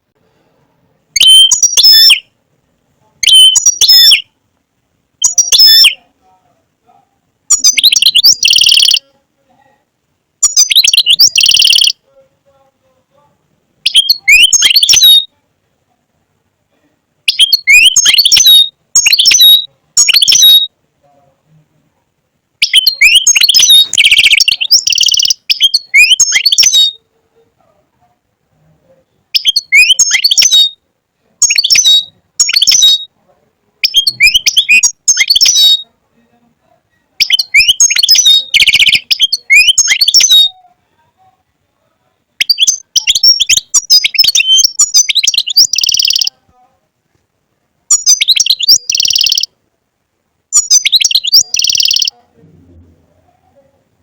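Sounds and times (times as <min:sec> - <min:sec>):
goldfinch twittering song: 0:47.9 - 0:49.5.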